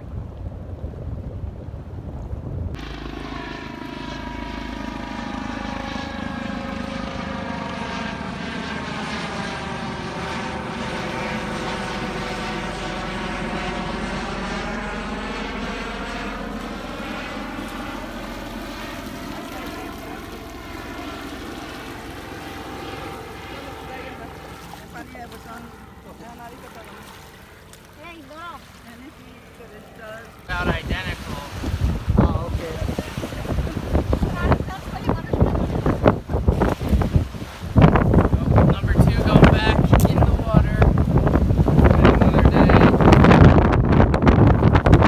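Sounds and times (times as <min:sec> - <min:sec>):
aircraft engine drone: 0:02.0 - 0:45.0.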